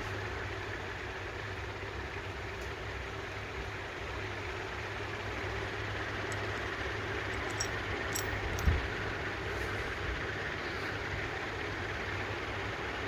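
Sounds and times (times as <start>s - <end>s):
low hum: 5.3s - 12.3s.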